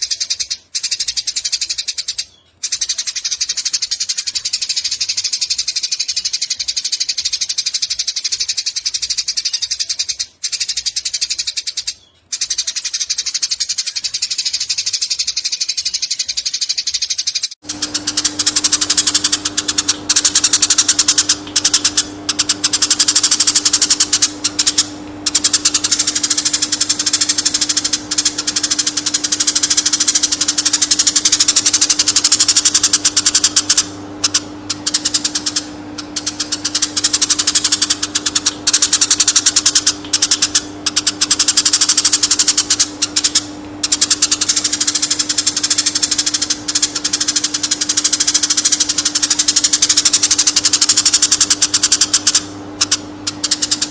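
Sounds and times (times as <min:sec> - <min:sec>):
sparrow chattering: 0:00.0 - 0:53.9
steady low hum: 0:00.0 - 0:53.9.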